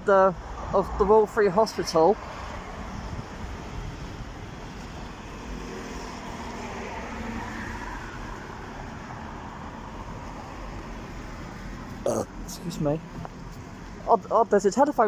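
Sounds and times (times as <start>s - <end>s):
passing cars: 0.0s - 15.0s
engine passing by: 0.5s - 14.0s
wind on microphone: 2.3s - 6.6s.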